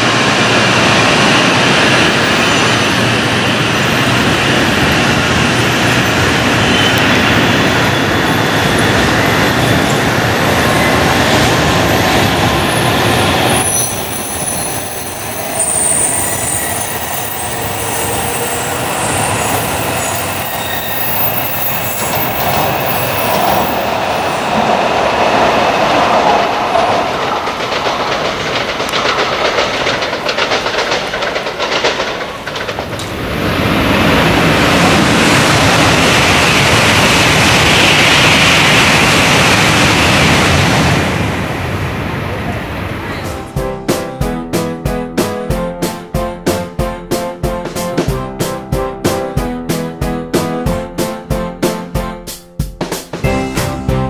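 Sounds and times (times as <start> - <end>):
train rumble: 0.0 - 51.8
train rushing on track: 0.0 - 54.0
high-pitched wheel squeals: 7.8 - 24.4.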